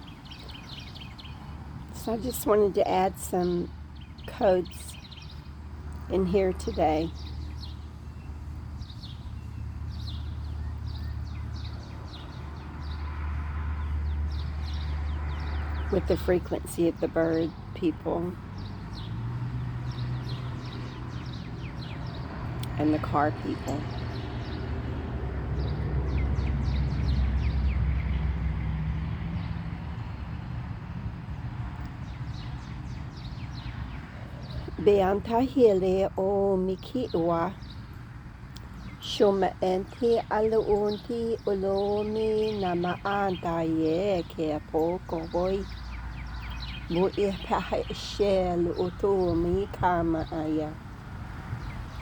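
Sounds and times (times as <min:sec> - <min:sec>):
small birds chirping: 0:00.0 - 0:28.4, 0:31.4 - 0:52.0
distant road traffic rumble: 0:00.0 - 0:52.0
car passing by: 0:23.2 - 0:32.1.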